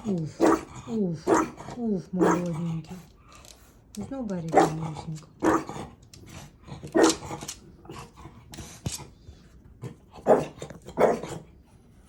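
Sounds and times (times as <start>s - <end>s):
dog barking: 0.4s - 0.7s, 1.3s - 1.6s, 2.2s - 2.5s, 4.5s - 4.8s, 5.4s - 5.8s, 6.9s - 7.3s, 10.2s - 11.4s.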